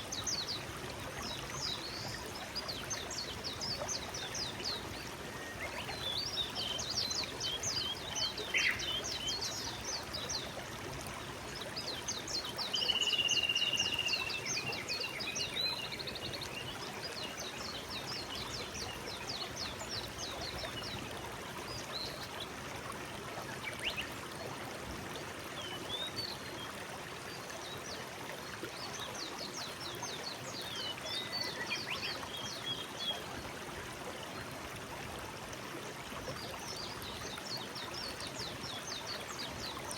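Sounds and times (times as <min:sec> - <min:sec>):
forest stream flowing: 0:00.0 - 0:39.9
songbird singing: 0:01.7 - 0:10.5, 0:12.2 - 0:21.0, 0:30.6 - 0:33.2.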